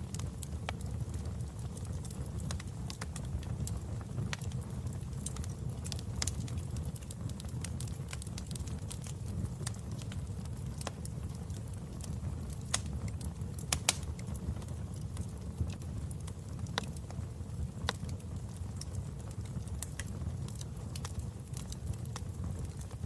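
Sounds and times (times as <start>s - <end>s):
fire pops and snaps: 0.0s - 23.0s
wood fire crackling: 0.0s - 23.0s.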